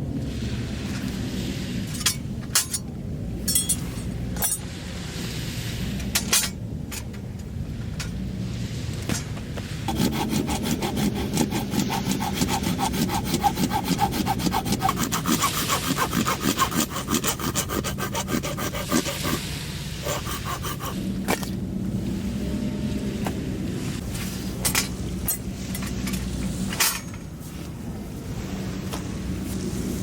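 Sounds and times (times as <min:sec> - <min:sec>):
hand saw cutting wood: 0:09.9 - 0:21.6.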